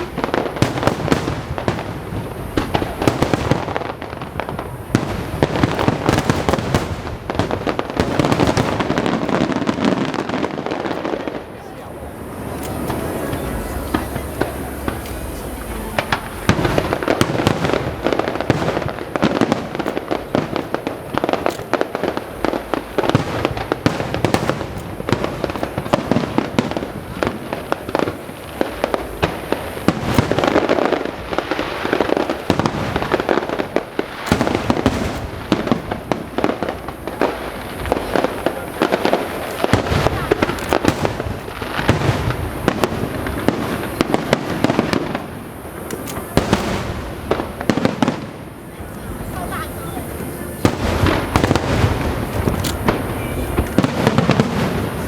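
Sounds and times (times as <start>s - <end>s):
fireworks bursting: 0.0s - 55.0s.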